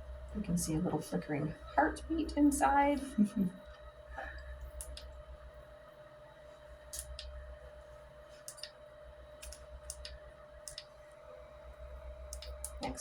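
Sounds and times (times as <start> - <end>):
low electrical hum: 0.0 - 13.0
faint clicks: 4.8 - 5.1, 9.4 - 10.9, 12.3 - 12.9.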